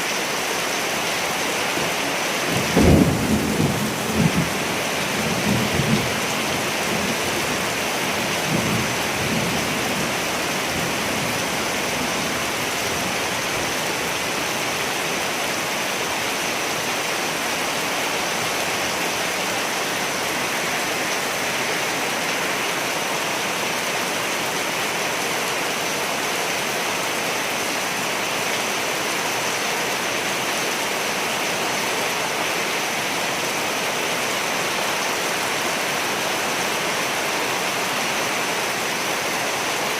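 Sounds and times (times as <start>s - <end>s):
steady rain: 0.0s - 39.9s
low thunder rumbling: 2.5s - 7.2s.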